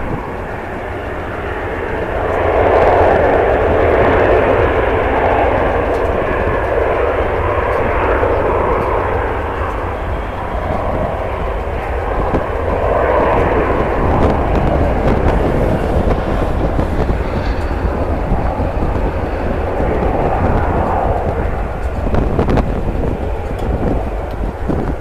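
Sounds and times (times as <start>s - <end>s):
jet airliner engine rush: 0.0s - 25.0s
wind buffeting microphone: 0.0s - 25.0s.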